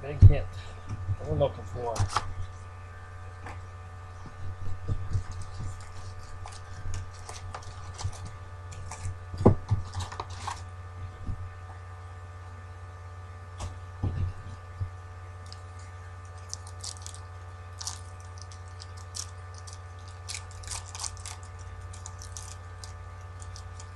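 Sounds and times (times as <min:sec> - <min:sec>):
steady electrical hum: 0:00.0 - 0:23.9
cards crinkling and rustling: 0:05.1 - 0:10.7, 0:15.4 - 0:23.9.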